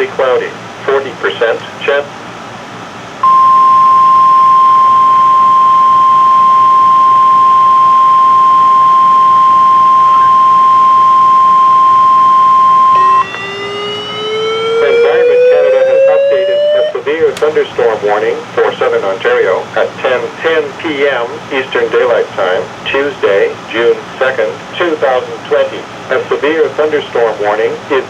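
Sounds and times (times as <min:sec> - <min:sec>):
faint radio hiss: 0:00.0 - 0:28.0
high alarm beep: 0:03.2 - 0:16.9
lower tone rising in pitch: 0:03.2 - 0:16.9.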